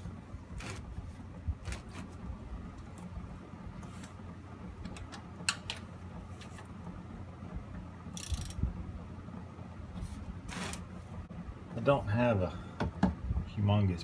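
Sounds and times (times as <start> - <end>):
steady low hum: 0.0 - 14.0
ratchet wrench clicking: 8.2 - 8.6.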